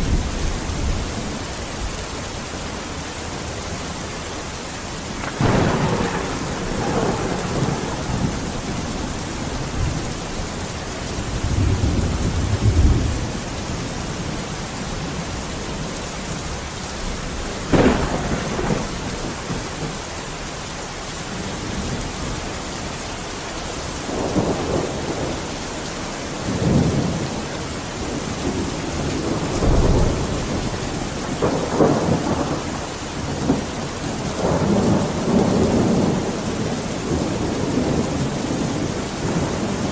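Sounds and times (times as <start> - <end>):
heavy rain: 0.0 - 39.9
thunder rumbling: 5.0 - 14.0, 17.1 - 20.1, 26.4 - 39.9.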